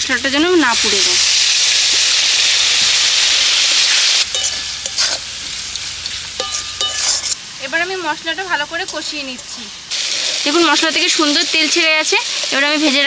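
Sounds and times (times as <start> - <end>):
water sizzling in hot oil: 0.0 - 13.0
steel spatula scraping a pan: 3.8 - 7.4, 11.2 - 13.0.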